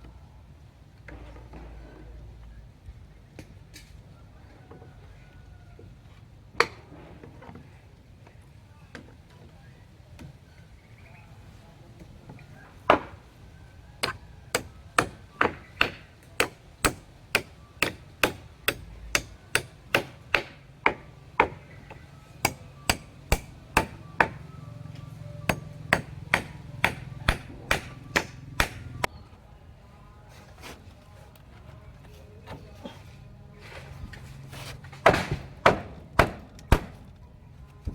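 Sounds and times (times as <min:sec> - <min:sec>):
hand tool striking: 0:14.0 - 0:21.6, 0:22.4 - 0:24.4, 0:25.5 - 0:29.1.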